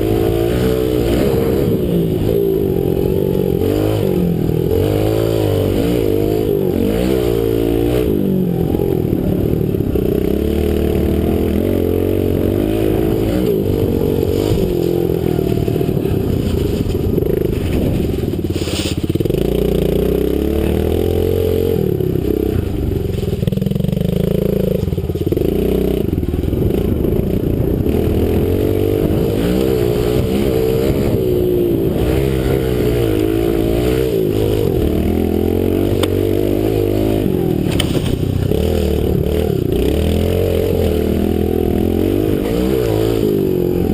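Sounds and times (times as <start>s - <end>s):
pit bike engine revving: 0.0s - 43.9s.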